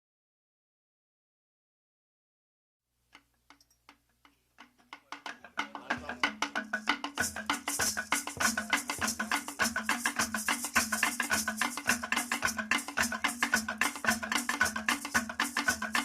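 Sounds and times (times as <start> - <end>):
wood block strikes: 3.2 - 16.0
fast drum pattern: 4.6 - 16.0
shaker: 4.7 - 16.0.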